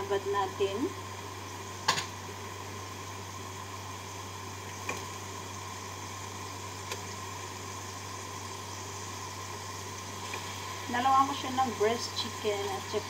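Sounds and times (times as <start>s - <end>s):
chicken sizzling in a pan: 0.0s - 13.0s
steady low hum: 0.0s - 13.0s.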